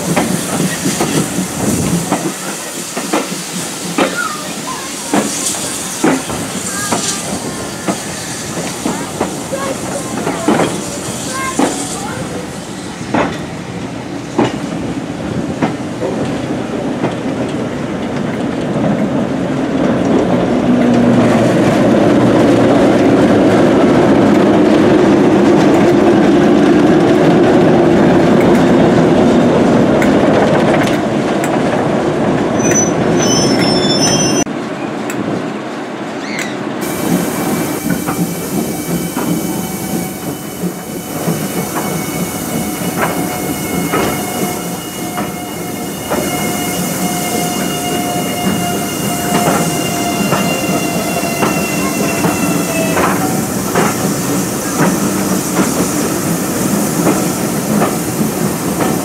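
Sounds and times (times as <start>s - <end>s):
train wheels rumbling on track: 0.0s - 59.0s
wheel squeal: 32.6s - 34.5s, 41.6s - 53.3s.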